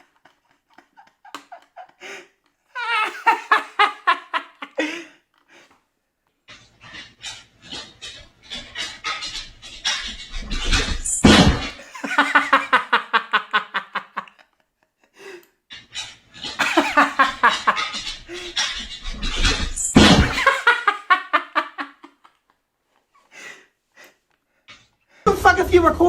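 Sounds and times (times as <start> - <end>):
person laughing heartily: 0.0 - 5.5, 11.7 - 15.4, 16.6 - 18.6, 20.0 - 22.5.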